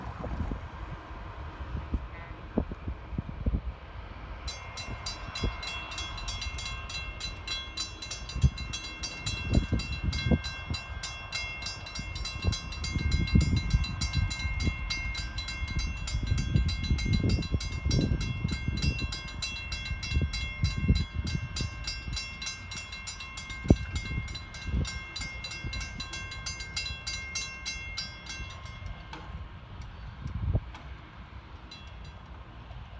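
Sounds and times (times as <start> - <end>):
crossing signal bell ringing: 4.4 - 29.7, 31.6 - 32.4.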